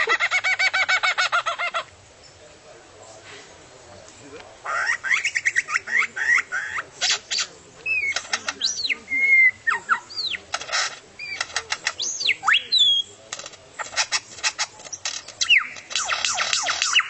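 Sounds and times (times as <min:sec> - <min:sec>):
bird whistling song: 0:04.7 - 0:17.0
bird sharp clicks: 0:04.8 - 0:17.0.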